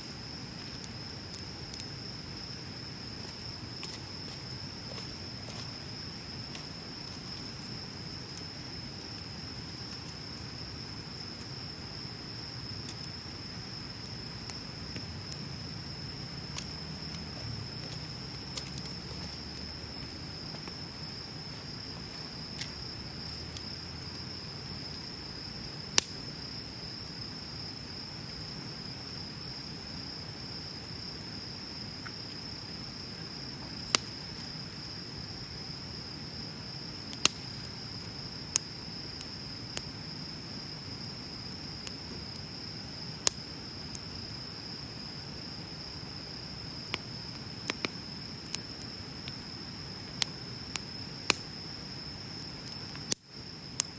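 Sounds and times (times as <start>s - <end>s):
burning wood popping: 0.0s - 26.4s, 32.0s - 34.6s, 37.0s - 40.0s, 46.8s - 53.9s
bonfire burning with low hiss: 0.0s - 53.9s.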